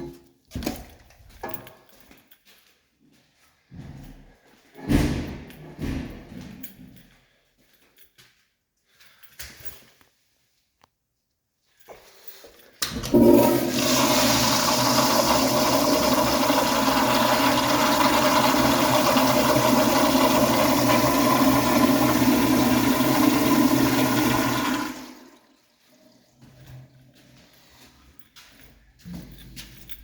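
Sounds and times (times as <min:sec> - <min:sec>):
flush valve opening: 0:12.8 - 0:25.4.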